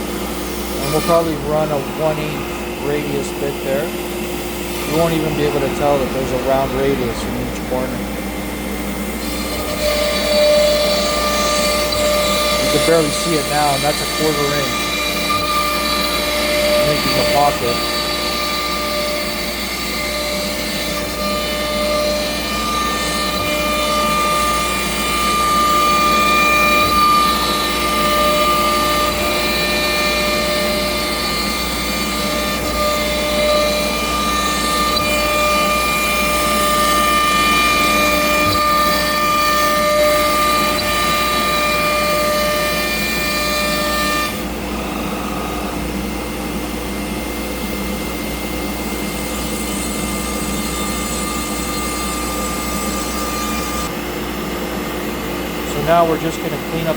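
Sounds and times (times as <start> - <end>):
router spindle whining: 0.0 - 56.9
hiss of cutting wood: 11.5 - 14.9.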